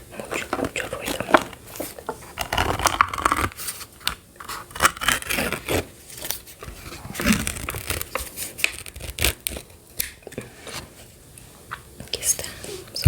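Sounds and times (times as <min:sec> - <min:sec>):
plastic packet crinkling and tearing: 0:00.1 - 0:09.8.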